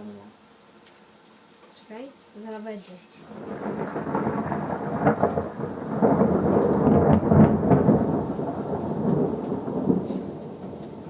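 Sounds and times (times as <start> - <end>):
thunder rumbling: 3.2 - 11.0.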